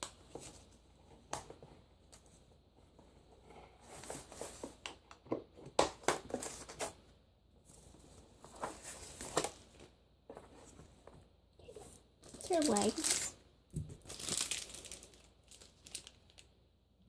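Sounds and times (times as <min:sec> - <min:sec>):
packaging crinkling and rustling: 0:12.2 - 0:16.5.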